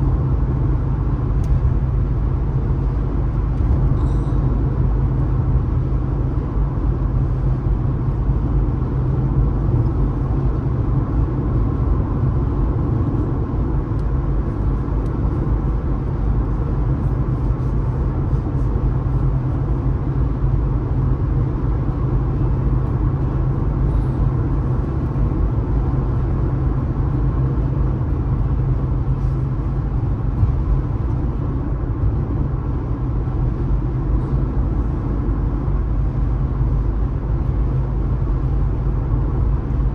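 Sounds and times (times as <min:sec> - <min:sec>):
car road noise rumble: 0:00.0 - 0:39.9.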